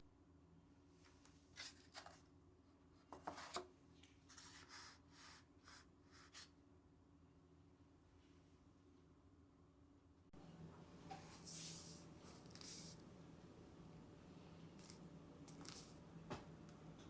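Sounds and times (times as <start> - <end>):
soft rustles and scrapes: 11.1 - 13.0.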